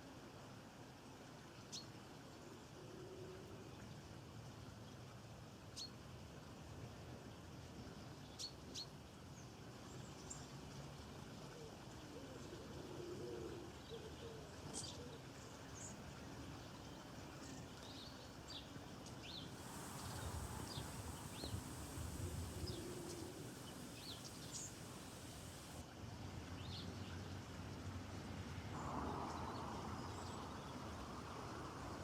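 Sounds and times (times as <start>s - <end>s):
small birds chirping: 17.4s - 25.8s
high hiss: 19.3s - 25.8s.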